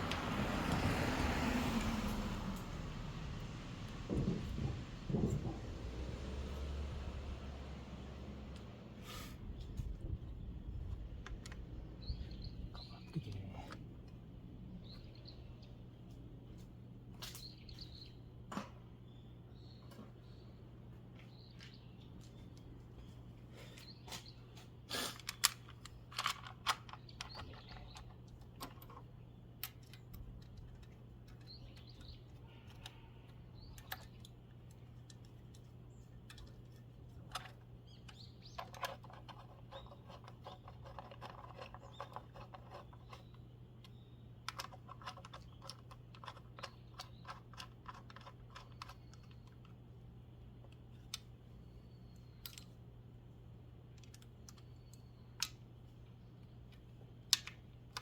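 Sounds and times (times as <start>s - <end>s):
hand tools clicking and tapping: 25.1s - 49.8s.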